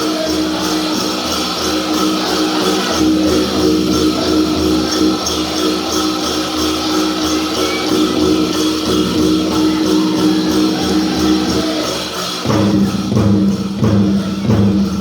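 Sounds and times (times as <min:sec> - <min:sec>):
big drum beating: 0:00.0 - 0:15.0
voices singing in unison: 0:00.0 - 0:15.0.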